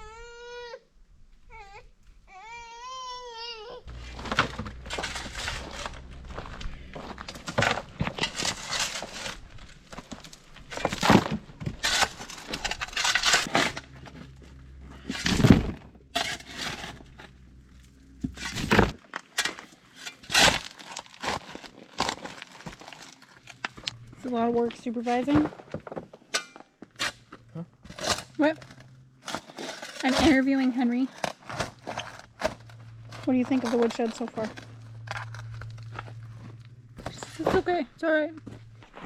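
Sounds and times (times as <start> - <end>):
baby crying: 0.0 - 0.9, 1.5 - 3.9
low steady hum: 0.8 - 39.0
crunching knocks and scrapes: 3.8 - 39.0.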